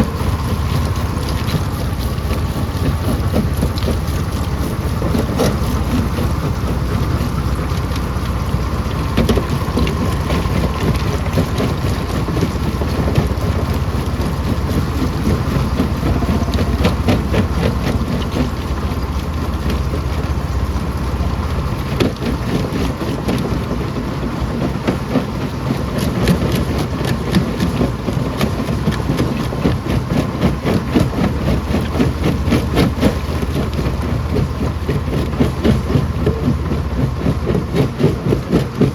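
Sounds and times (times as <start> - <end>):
stone crusher rumbling: 0.0 - 23.6.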